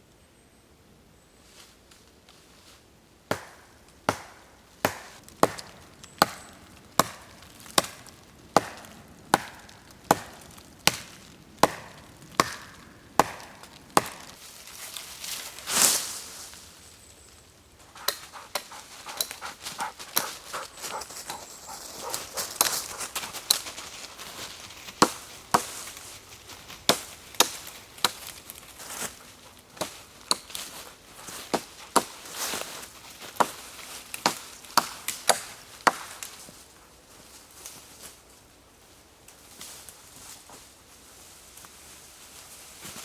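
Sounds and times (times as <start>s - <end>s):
hatchet chopping wood: 3.3s - 14.4s, 18.0s - 23.6s, 25.0s - 25.8s, 26.9s - 28.3s, 29.8s - 33.6s, 34.2s - 36.3s.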